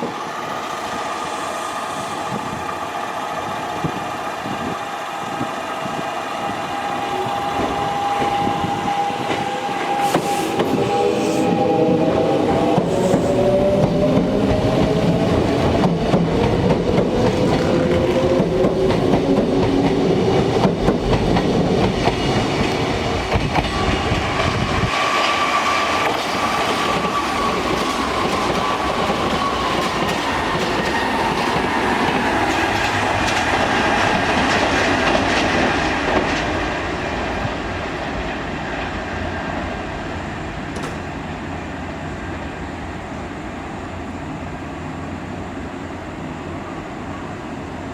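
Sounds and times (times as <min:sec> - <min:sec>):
train deep rumble: 0:00.0 - 0:42.2
electric train motor whine: 0:00.1 - 0:20.6.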